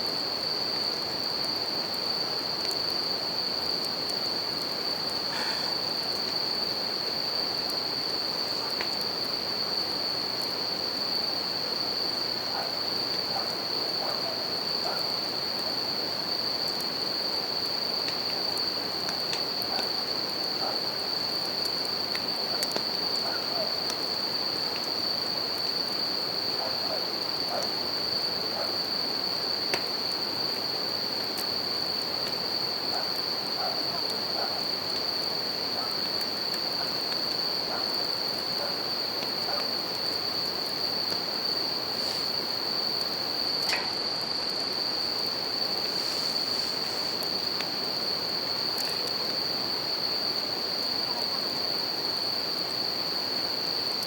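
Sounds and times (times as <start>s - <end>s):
campfire crackling: 0.1s - 51.3s.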